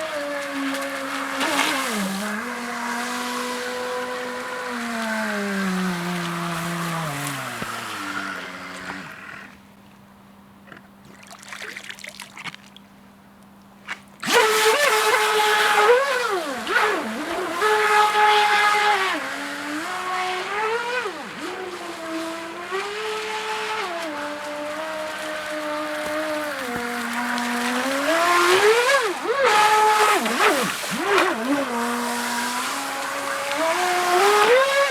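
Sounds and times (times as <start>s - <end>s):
model boat motor whining: 0.0s - 11.2s, 14.2s - 34.9s.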